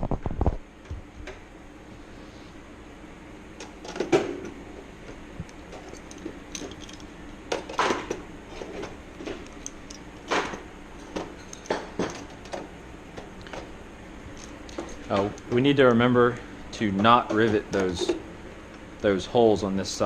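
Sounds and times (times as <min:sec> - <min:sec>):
handling noise: 0:03.6 - 0:16.0.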